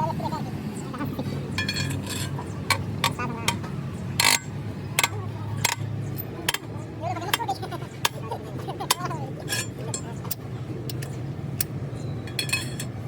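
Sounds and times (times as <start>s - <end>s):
low engine hum: 0.0s - 13.0s
metal clanking and knocking: 1.5s - 3.6s, 12.3s - 13.0s.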